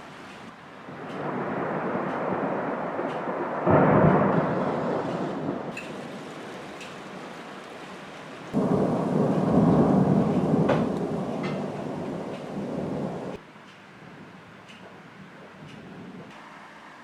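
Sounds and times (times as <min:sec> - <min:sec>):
steady rain: 0:00.0 - 0:17.0
thunder cracking and rolling: 0:00.9 - 0:13.4.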